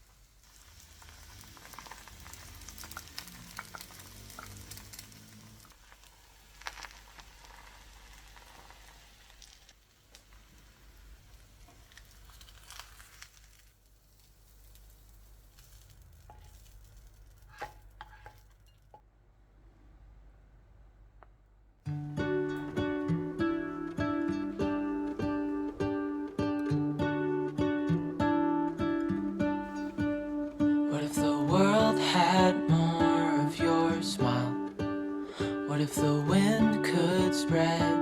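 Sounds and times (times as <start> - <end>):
food sizzling in a pan: 0.0 - 18.9, 28.2 - 38.0.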